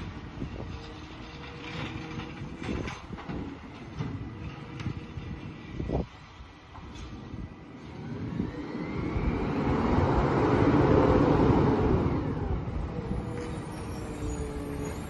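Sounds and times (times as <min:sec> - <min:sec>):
vehicle driving past: 0:07.8 - 0:15.0.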